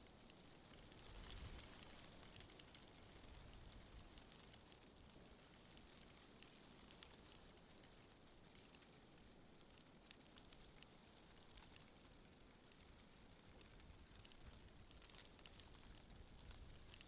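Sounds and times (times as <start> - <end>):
light crackling clicks: 5.7 - 17.0.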